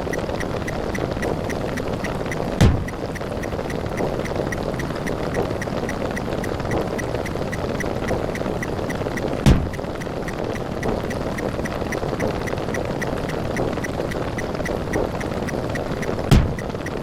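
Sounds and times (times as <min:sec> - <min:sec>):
dense repeating sound effects: 0:00.0 - 0:17.0
heavy low thud: 0:02.6 - 0:02.9, 0:09.5 - 0:09.8, 0:16.3 - 0:16.7.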